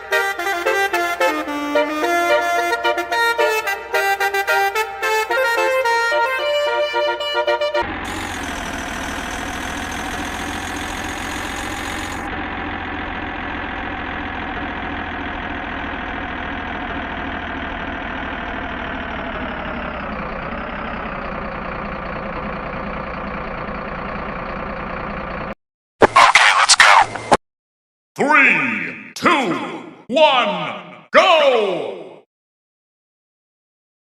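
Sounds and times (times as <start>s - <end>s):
truck engine running: 7.6s - 25.6s.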